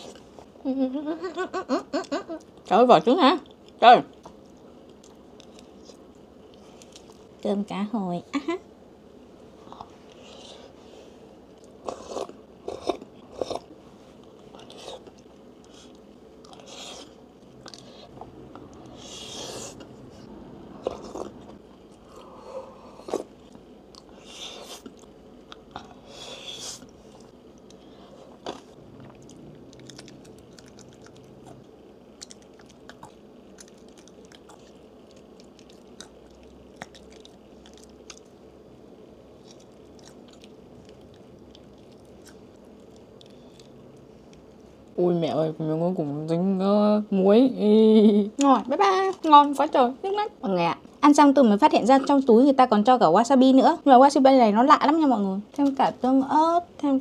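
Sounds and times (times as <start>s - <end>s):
person chewing food: 3.4s - 7.3s, 11.4s - 38.6s, 39.3s - 44.9s.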